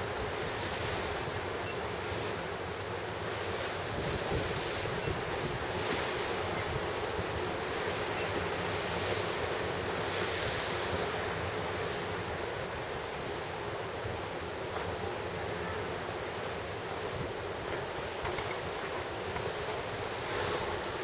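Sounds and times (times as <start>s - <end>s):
wind buffeting microphone: 3.9s - 7.5s.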